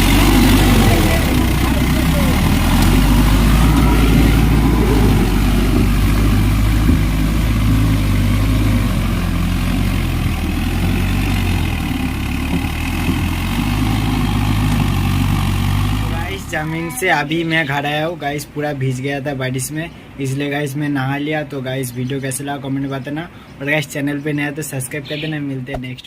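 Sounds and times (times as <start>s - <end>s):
tractor engine running: 0.0s - 17.5s.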